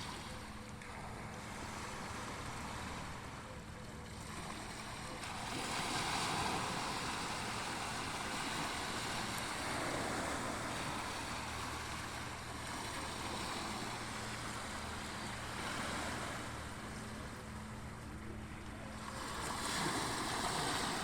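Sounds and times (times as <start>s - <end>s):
ocean waves washing in: 4.4s - 21.0s.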